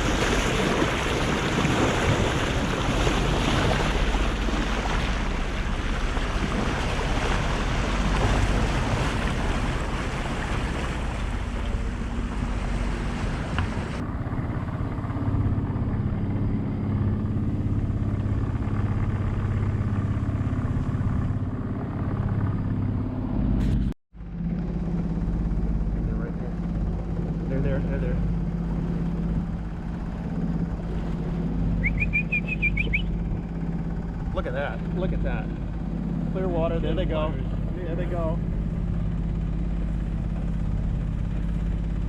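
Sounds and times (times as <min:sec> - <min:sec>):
rushing water: 0:00.0 - 0:14.0
low engine hum: 0:00.0 - 0:42.0.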